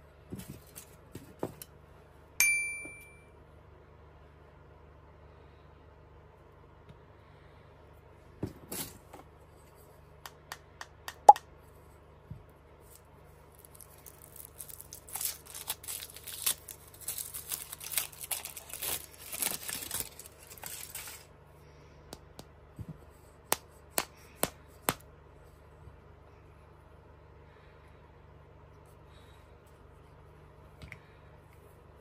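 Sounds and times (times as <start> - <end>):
foil wrapper crinkling and tearing: 13.5 - 21.3.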